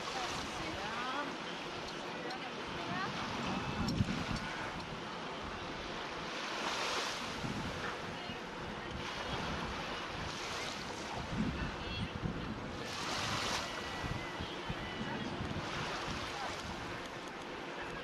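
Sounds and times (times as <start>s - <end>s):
water rushing along a hull: 0.0s - 18.0s
wind on the microphone: 2.7s - 5.8s, 6.6s - 17.2s.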